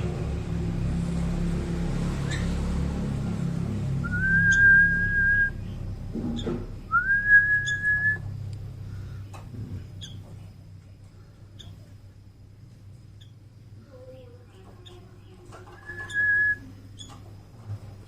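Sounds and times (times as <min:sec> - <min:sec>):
person whistling long notes: 0:04.0 - 0:05.6, 0:06.9 - 0:08.2
bird high chirps: 0:04.0 - 0:05.8, 0:06.4 - 0:08.2, 0:10.0 - 0:10.3, 0:13.2 - 0:13.4, 0:14.8 - 0:17.2.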